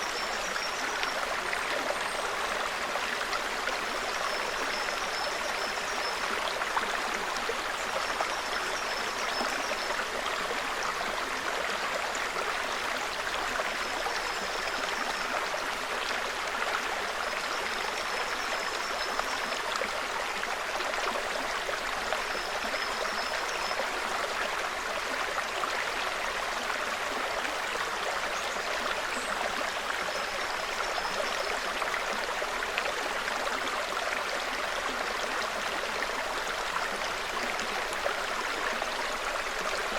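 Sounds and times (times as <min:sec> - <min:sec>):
brook burbling over stones: 0:00.0 - 0:39.9.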